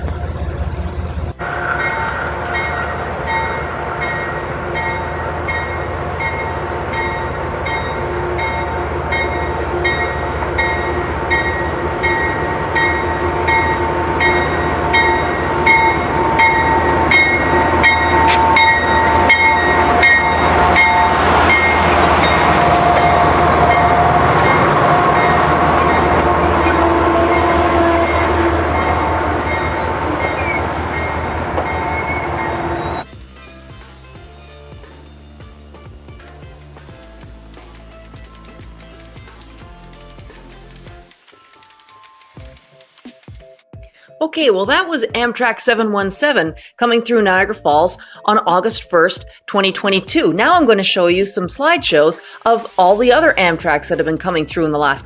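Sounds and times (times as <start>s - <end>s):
diesel locomotive engine running: 0.0s - 33.1s, 52.9s - 55.0s
locomotive bell ringing: 0.0s - 33.1s
rail noise: 0.0s - 33.2s, 52.0s - 55.0s.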